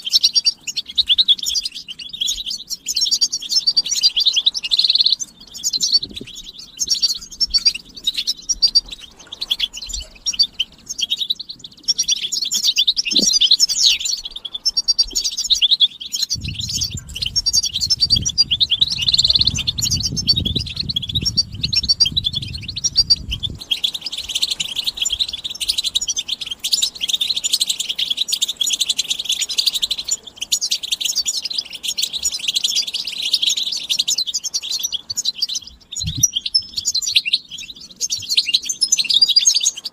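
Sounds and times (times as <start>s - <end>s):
goldfinches chattering and twittering: 0.0s - 39.9s
low rumble: 16.4s - 23.7s.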